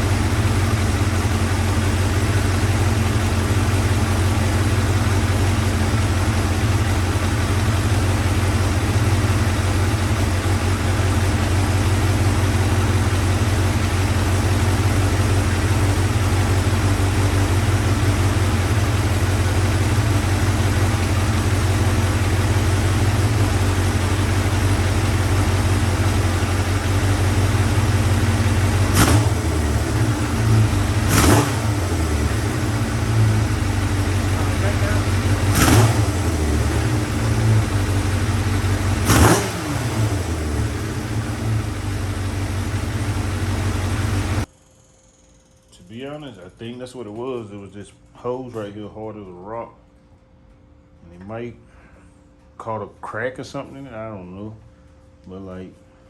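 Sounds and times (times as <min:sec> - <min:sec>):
motorcycle engine idling: 0:00.0 - 0:44.5.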